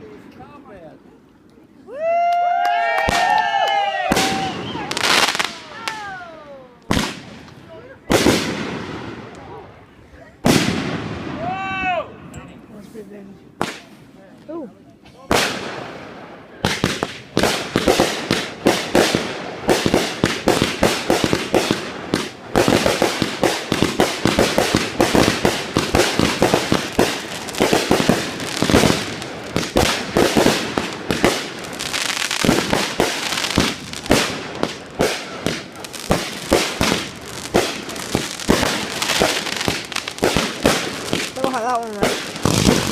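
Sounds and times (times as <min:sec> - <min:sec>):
fireworks bangs and crackling: 0:02.8 - 0:09.8, 0:10.4 - 0:11.9, 0:13.6 - 0:14.0, 0:15.2 - 0:42.9.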